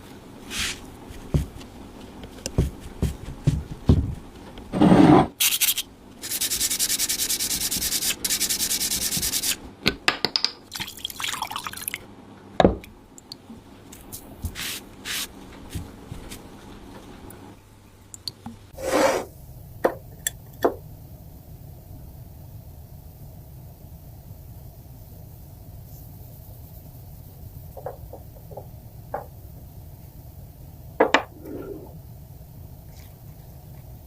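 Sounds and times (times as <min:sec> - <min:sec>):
rapid sanding strokes: 0:05.4 - 0:09.6.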